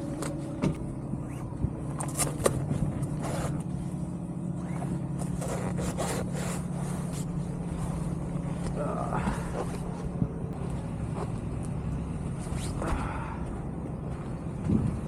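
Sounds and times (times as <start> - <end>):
low engine hum: 0.0 - 15.0
rustling and scrapes near microphone: 1.3 - 3.8, 4.6 - 8.8.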